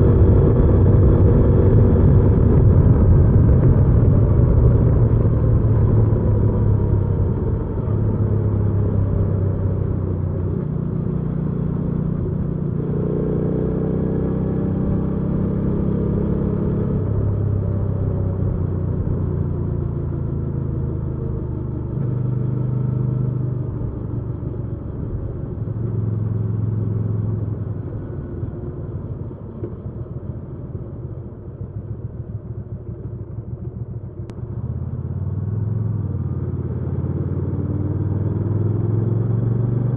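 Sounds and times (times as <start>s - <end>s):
motorcycle engine running: 0.0s - 39.6s.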